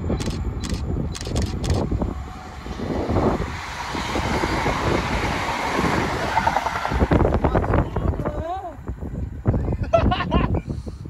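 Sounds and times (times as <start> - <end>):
train passing rumble: 0.0 - 9.7
sharp clicks: 0.1 - 1.9.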